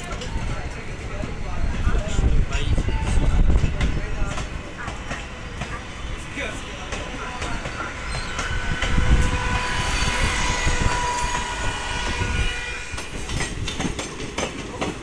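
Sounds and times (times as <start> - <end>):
clacks over rail joints: 0.0 - 2.3, 3.0 - 9.6, 12.9 - 15.0
train wheels rumbling on rails: 0.0 - 15.0
wheel squeal: 7.7 - 12.7.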